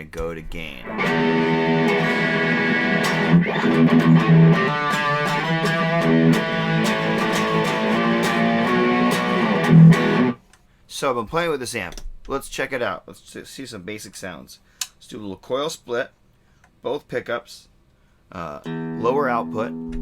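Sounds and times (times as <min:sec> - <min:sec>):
electric guitar chords and notes: 0:00.8 - 0:10.4, 0:18.6 - 0:20.0.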